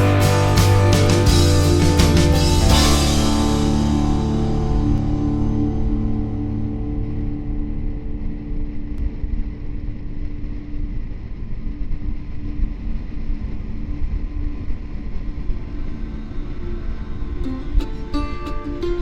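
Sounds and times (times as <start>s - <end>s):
motorcycle engine cruising: 0.0s - 6.9s.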